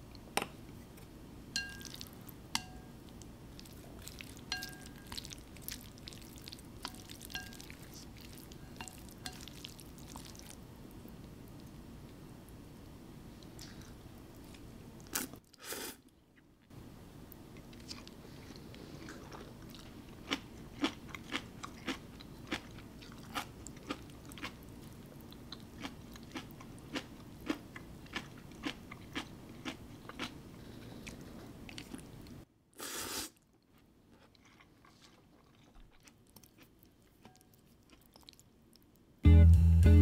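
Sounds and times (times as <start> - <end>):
low steady hum: 0.0 - 15.4, 16.1 - 32.5
crunchy food chewing: 17.7 - 32.1, 33.4 - 39.0.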